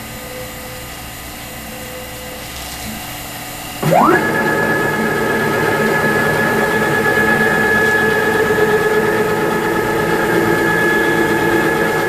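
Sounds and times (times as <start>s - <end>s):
router spindle whine: 4.1s - 12.0s.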